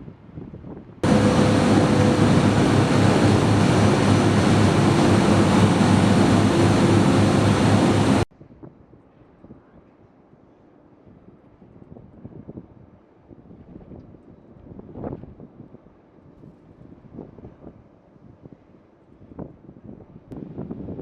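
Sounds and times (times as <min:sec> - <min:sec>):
faint wind-like noise: 0:00.0 - 0:21.0
loud steady roar with hums: 0:00.6 - 0:08.3.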